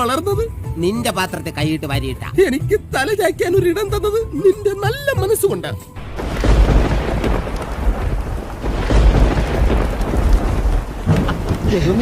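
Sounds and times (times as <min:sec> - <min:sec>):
heavy rain: 0:06.0 - 0:12.0
thunder rumbling: 0:06.0 - 0:12.0.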